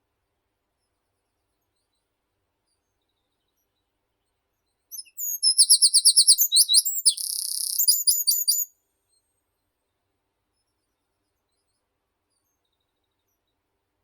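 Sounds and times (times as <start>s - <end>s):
songbird singing: 4.9s - 8.7s.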